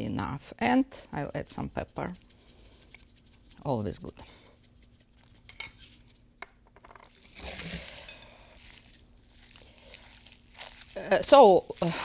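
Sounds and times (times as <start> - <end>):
utensils clinking against bowl: 7.4 - 8.8.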